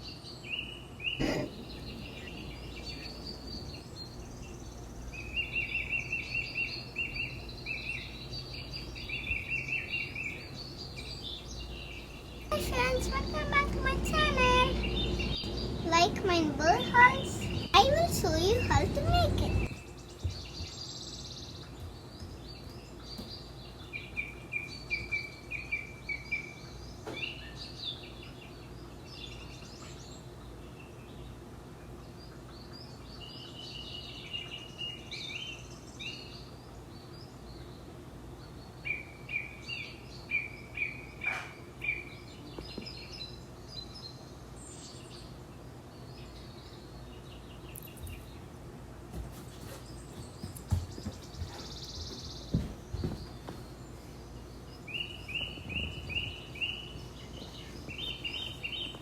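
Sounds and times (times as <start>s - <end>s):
birds chirping and calling: 1.1s - 19.8s, 49.9s - 59.0s
steady low hum: 1.2s - 19.8s.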